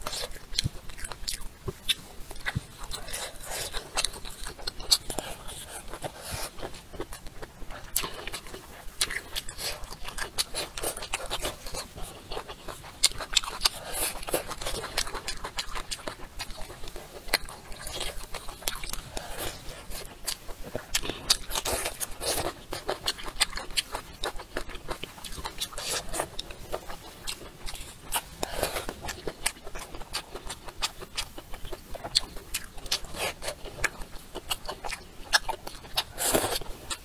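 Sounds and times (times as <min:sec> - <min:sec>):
chewing and wet smacks: 0:00.0 - 0:37.0.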